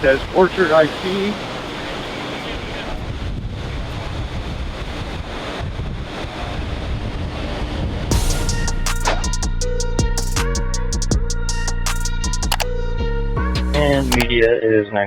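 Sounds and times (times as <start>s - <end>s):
ocean surf: 0.0s - 6.6s
wind buffeting microphone: 0.0s - 8.1s
music: 8.1s - 14.5s.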